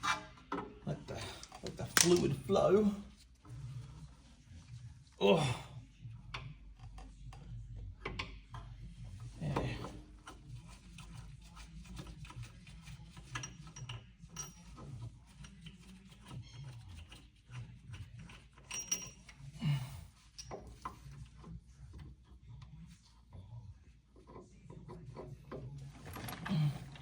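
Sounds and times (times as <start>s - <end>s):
tools clicking and knocking on brakes: 9.5s - 22.2s.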